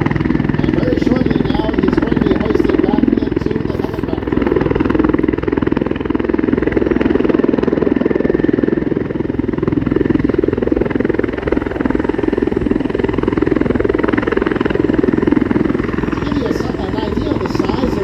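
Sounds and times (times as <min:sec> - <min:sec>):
helicopter rotor beating: 0:00.0 - 0:18.0.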